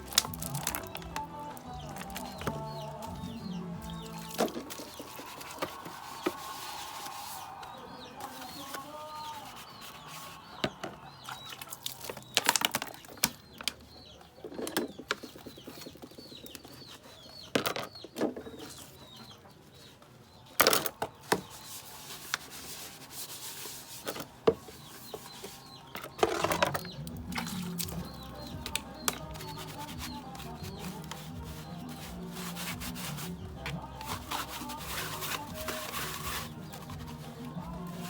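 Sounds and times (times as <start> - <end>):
rustling scraping and knocking: 0.0 - 11.0, 20.6 - 38.0
bird chirping: 0.0 - 21.9, 24.0 - 38.0.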